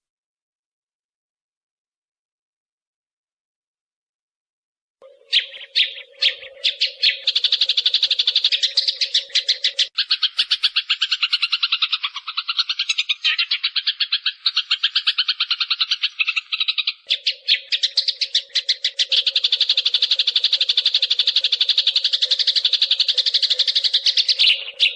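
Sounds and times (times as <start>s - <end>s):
sparrows chirping rapidly: 5.0s - 24.9s.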